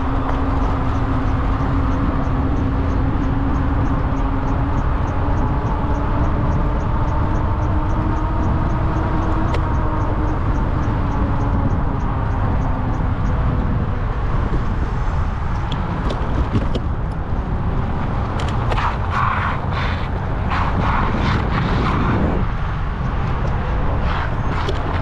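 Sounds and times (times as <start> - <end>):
light even ticking: 0.0 - 20.5
wind and traffic rumble: 0.0 - 25.0.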